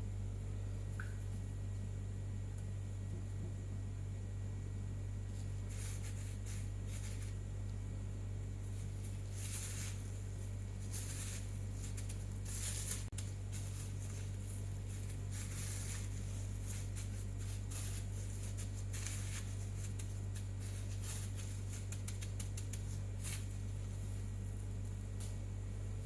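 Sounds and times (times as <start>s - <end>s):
steady low hum: 0.0s - 26.0s
light crackling and clicking: 8.8s - 25.5s.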